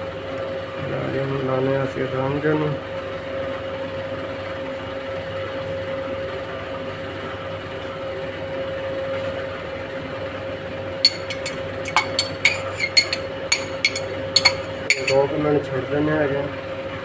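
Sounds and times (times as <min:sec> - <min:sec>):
utensils clinking on cookware: 0:11.1 - 0:15.3.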